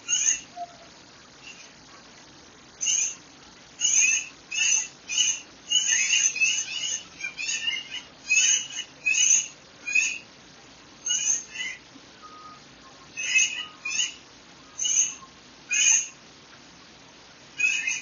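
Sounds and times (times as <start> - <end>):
bird calling in high notes: 0.0 - 1.7, 2.8 - 3.2, 3.8 - 10.3, 11.0 - 16.2, 17.6 - 18.0.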